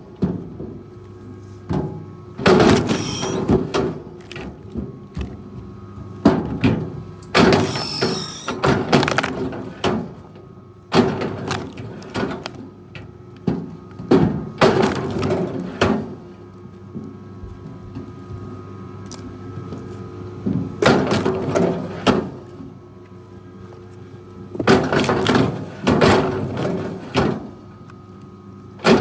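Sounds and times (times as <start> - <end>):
heavy machine engine running: 2.4 - 4.4
wood cracking and crunching: 8.8 - 9.7, 11.2 - 12.6.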